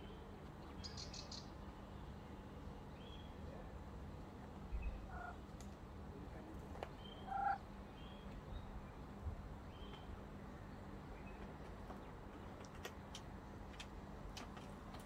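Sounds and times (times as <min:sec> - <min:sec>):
low bird calls: 0:07.0 - 0:08.3.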